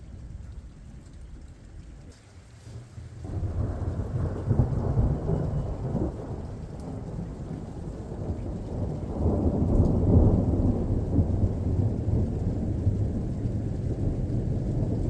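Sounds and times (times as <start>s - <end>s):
thunder rumbling: 3.2s - 15.0s.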